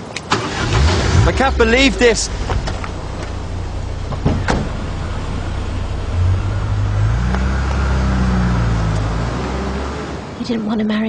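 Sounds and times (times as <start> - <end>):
car engine pulling away: 0.3 - 10.5.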